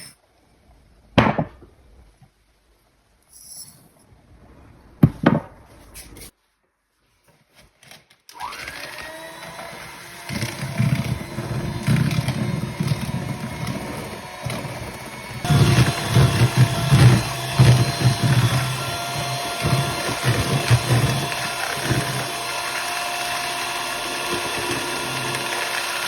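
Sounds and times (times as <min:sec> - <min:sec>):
faint handling sounds: 0:05.7 - 0:08.3
kitchen appliance motor whining: 0:08.3 - 0:26.0.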